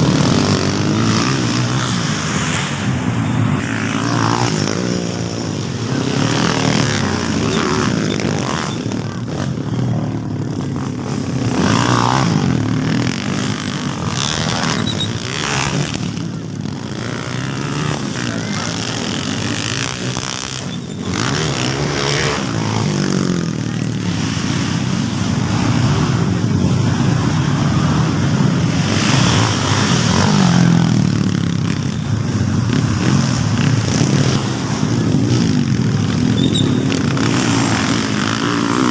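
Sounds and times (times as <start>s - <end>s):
motocross bike engines revving: 0.0s - 38.9s.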